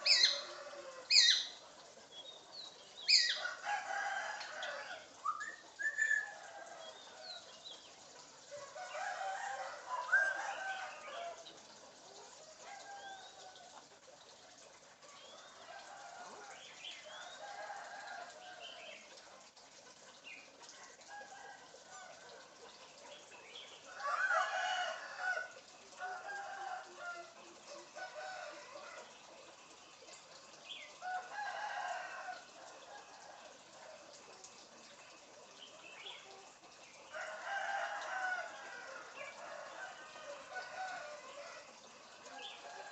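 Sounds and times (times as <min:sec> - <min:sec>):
bird crowing and clucking: 0:00.0 - 0:01.6, 0:03.0 - 0:07.5, 0:08.5 - 0:11.5, 0:23.9 - 0:29.3, 0:31.0 - 0:33.9, 0:37.1 - 0:42.9.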